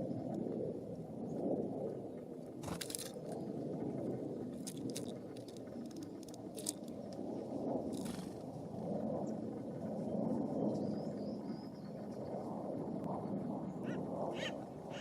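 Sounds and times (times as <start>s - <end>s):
wind rumbling on microphone: 0.0s - 15.0s
sharp crunching clicks: 2.6s - 3.4s, 4.6s - 7.2s.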